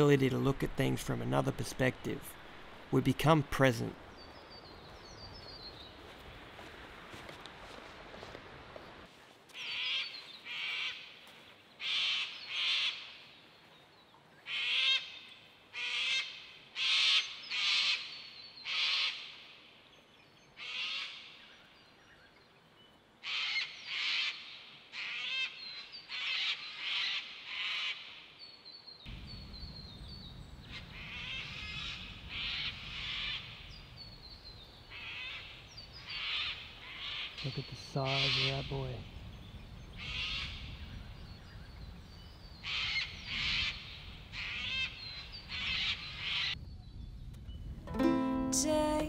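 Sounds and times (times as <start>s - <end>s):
birds calling loudly: 23.0s - 47.0s.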